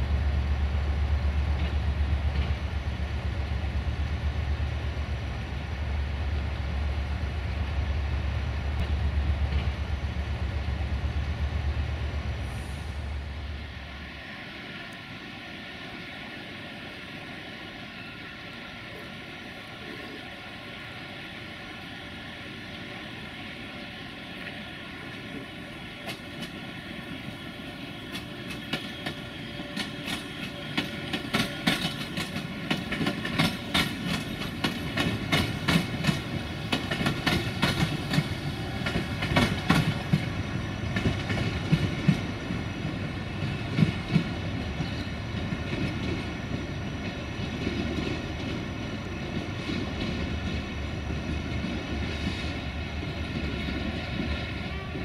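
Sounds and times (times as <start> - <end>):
train rumble: 0.0 - 55.0
train wheels clacking: 25.1 - 26.7, 28.0 - 54.4.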